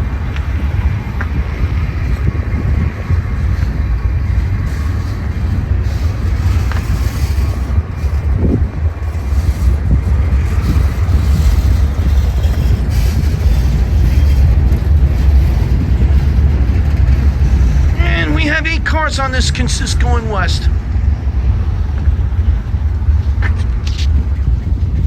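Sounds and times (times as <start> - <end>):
freight train rumbling on rails: 0.0 - 25.0
wind buffeting microphone: 0.0 - 25.0.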